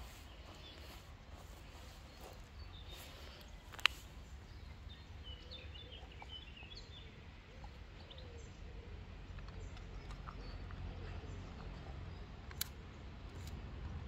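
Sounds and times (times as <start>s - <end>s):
birds chirping faintly: 0.0s - 14.0s
sharp click: 12.5s - 12.8s.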